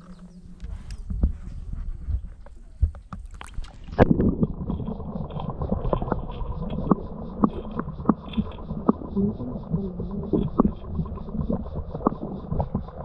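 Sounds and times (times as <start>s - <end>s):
underwater crackle and gurgle: 0.0s - 13.0s.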